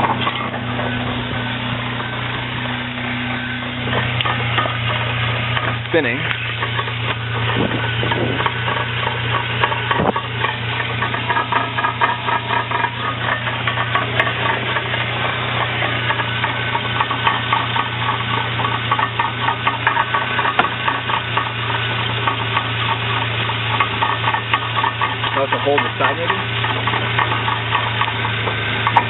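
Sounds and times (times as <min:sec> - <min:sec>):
engine hum: 0:00.0 - 0:29.0
fast rattling knock: 0:06.5 - 0:29.0.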